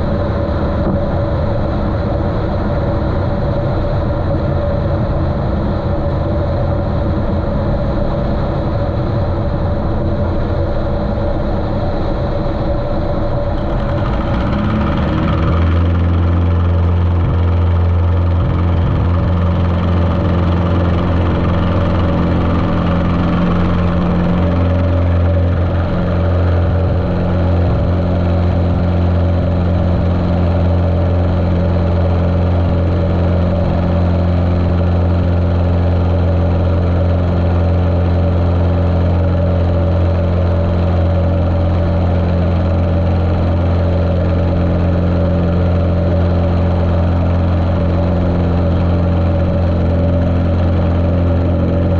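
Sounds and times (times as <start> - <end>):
muffled propeller plane engine: 0.0 - 51.9.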